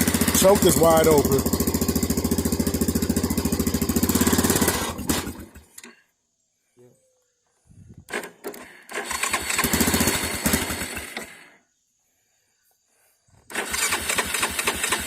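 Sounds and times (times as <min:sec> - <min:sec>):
loud engine sound: 0:00.0 - 0:05.5
engine starting and stalling: 0:00.0 - 0:06.0, 0:08.1 - 0:11.6, 0:13.4 - 0:15.0.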